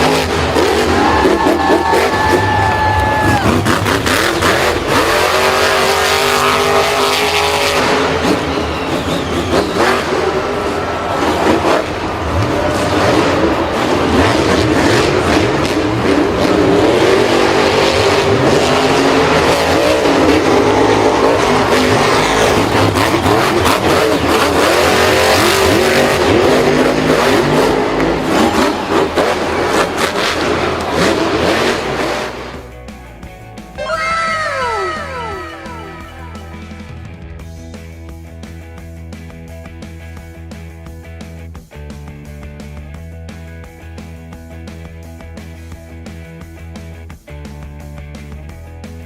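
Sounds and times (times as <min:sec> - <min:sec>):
vehicle engine revving: 0:00.0 - 0:33.6.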